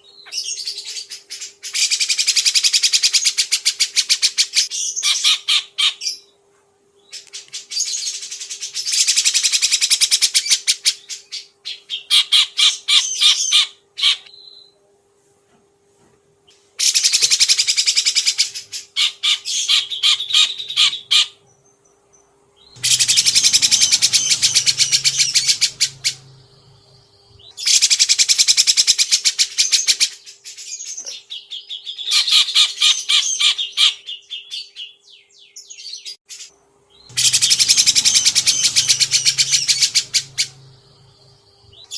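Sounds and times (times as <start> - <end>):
songbird singing: 16.5 - 36.1, 36.9 - 41.9.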